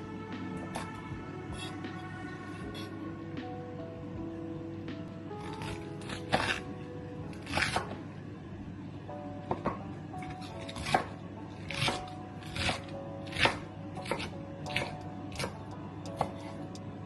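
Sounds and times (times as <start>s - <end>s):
soft background music: 0.0s - 17.0s
knife chopping on cutting board: 0.5s - 2.0s, 5.4s - 6.7s, 7.4s - 8.0s, 9.5s - 16.6s.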